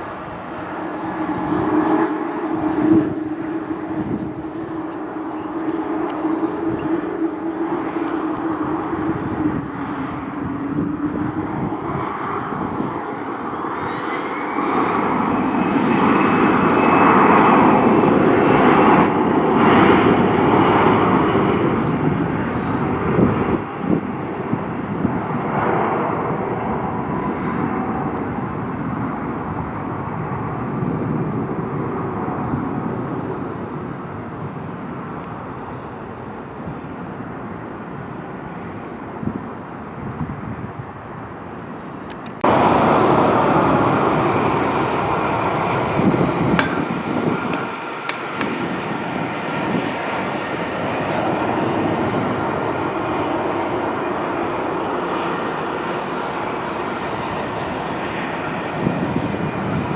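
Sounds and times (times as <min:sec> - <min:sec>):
high engine whine: 0:00.0 - 0:29.9, 0:40.7 - 0:59.9
jet engines roaring: 0:00.0 - 0:59.9.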